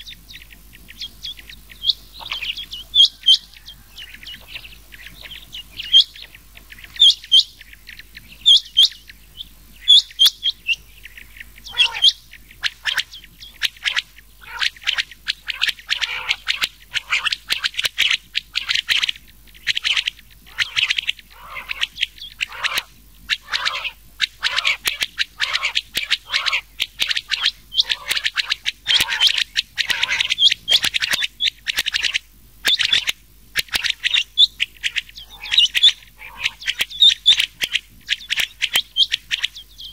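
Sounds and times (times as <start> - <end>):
quail calling: 0.0 - 39.9.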